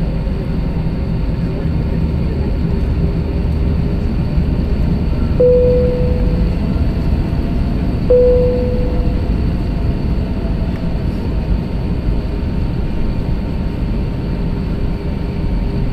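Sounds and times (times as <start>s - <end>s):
aircraft engine and airflow rumble: 0.0s - 15.9s
single-tone cabin chime: 5.4s - 6.8s, 8.1s - 9.4s.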